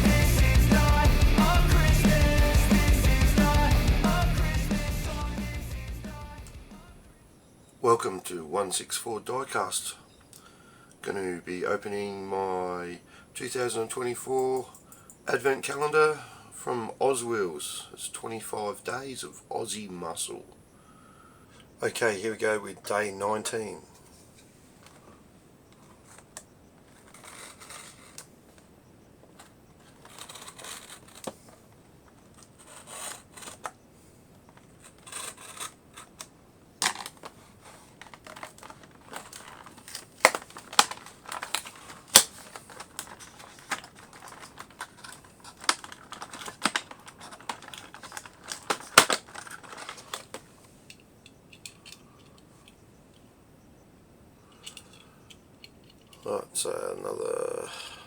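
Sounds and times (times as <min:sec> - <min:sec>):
plastic clicks and crinkles: 0:10.1 - 0:11.1, 0:22.6 - 0:53.3, 0:54.4 - 0:56.3
paper rustling and tearing: 0:36.9 - 0:50.3.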